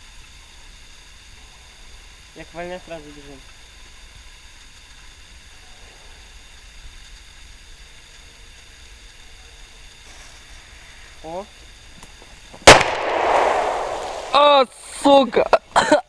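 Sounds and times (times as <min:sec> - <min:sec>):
firecracker bang: 0:12.6 - 0:14.5.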